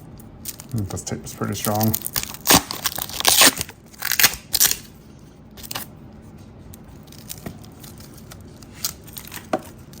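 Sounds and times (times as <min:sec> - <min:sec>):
tape ripping off roll: 0:02.2 - 0:04.8.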